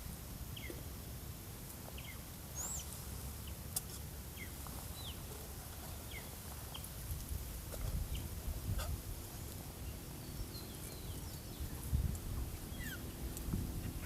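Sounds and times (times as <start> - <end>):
bird chirping: 9.8 - 11.9, 12.5 - 14.0
higher bird calls: 12.5 - 14.0.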